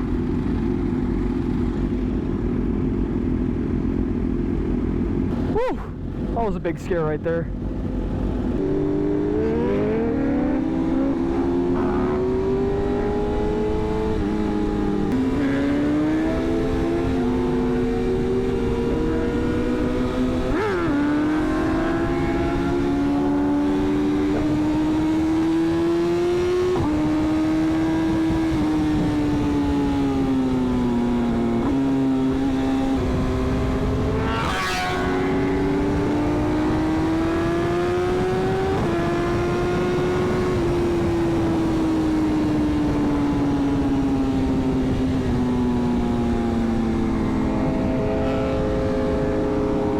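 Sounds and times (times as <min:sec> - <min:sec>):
motorcycle engine at speed: 0:00.0 - 0:49.9
wind noise: 0:05.2 - 0:49.9.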